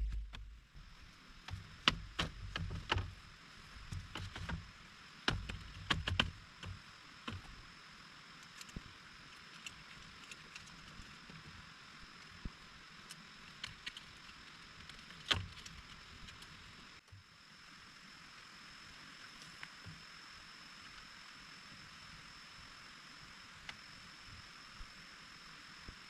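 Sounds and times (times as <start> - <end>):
steady rain hiss: 0.0 - 26.0
knocks and clicks: 1.5 - 3.1, 5.3 - 7.4.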